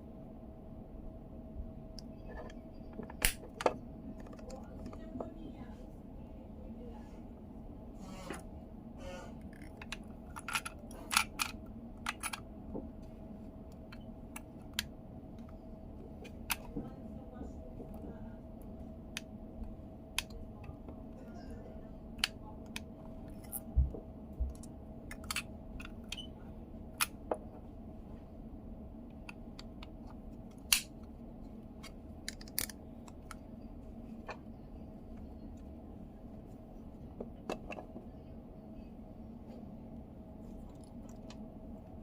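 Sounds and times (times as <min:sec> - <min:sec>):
faint hum: 0:00.0 - 0:42.0
small parts and tools clicking: 0:09.4 - 0:12.4, 0:24.5 - 0:26.3, 0:31.8 - 0:33.4.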